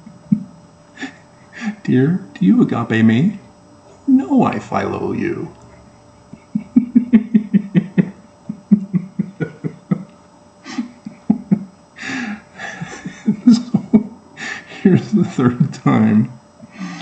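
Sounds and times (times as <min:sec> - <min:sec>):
man laughing: 0:00.0 - 0:01.9, 0:06.2 - 0:16.2.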